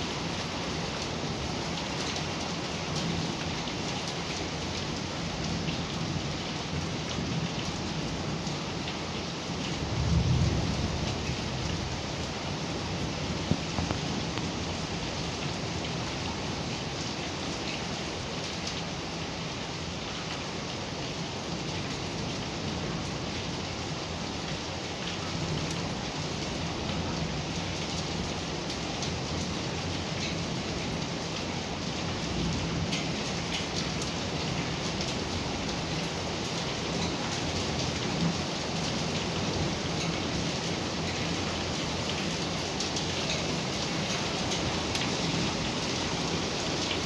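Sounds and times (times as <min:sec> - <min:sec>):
heavy rain falling: 0:00.0 - 0:47.0
low rumble of thunder: 0:09.8 - 0:14.8.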